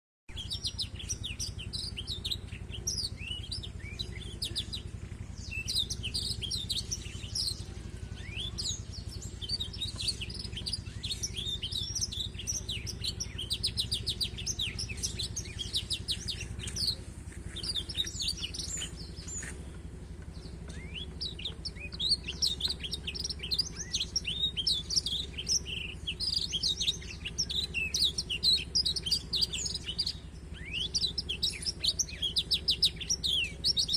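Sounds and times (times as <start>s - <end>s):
finch twittering song: 0.3s - 33.9s
steady low hum: 0.3s - 33.9s.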